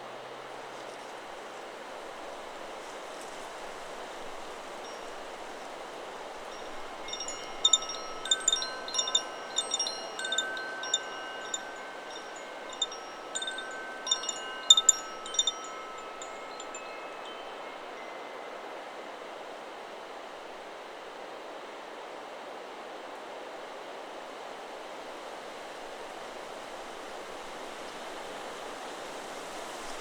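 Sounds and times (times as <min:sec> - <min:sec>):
wind rushing through trees: 0:00.0 - 0:30.0
wind chime ringing: 0:06.4 - 0:18.6.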